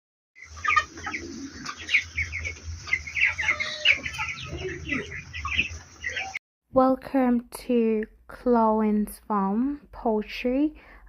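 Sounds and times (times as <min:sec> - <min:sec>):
chickens peeping and clucking: 0:00.4 - 0:06.4.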